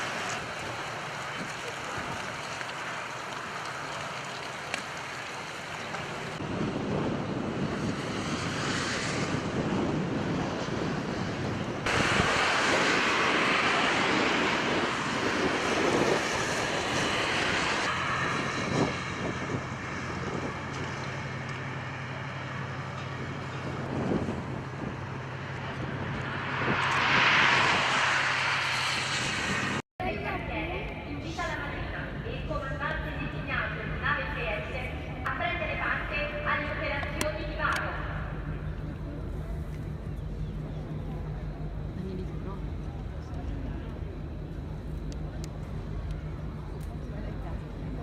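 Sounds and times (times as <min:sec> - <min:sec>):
rushing water: 0:00.0 - 0:06.4
boat engine drone: 0:00.0 - 0:08.5, 0:10.3 - 0:48.0
wind buffeting microphone: 0:00.0 - 0:48.0.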